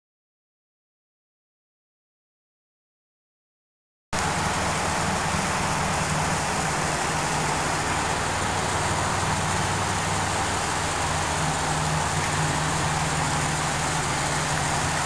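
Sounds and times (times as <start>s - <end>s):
car engine idling: 4.2s - 15.0s.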